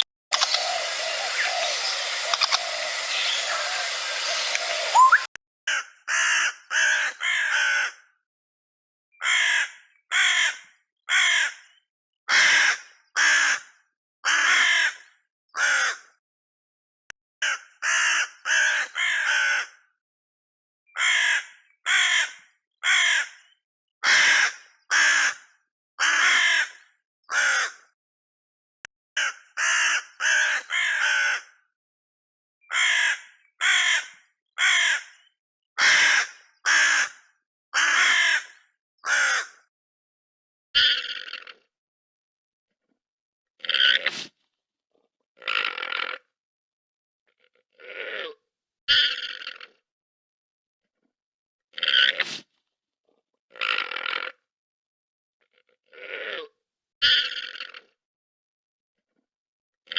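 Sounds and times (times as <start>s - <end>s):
harsh animal calls: 0.0s - 5.3s.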